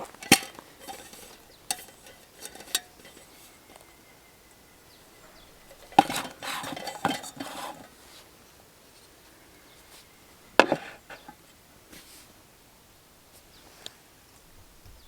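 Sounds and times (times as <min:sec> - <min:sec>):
cookware clinking and rattling: 0:00.0 - 0:04.2, 0:05.1 - 0:08.0.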